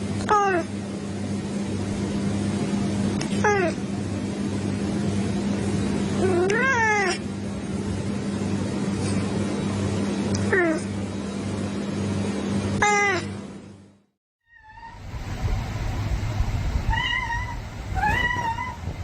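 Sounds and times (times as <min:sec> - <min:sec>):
steady low hum: 0:00.0 - 0:19.0
cat meowing: 0:16.9 - 0:18.8.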